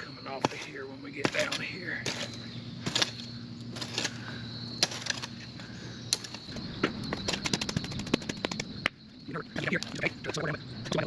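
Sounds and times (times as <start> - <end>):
tool knocking on soil and rock: 0.0 - 3.2
steady low hum: 0.0 - 11.0.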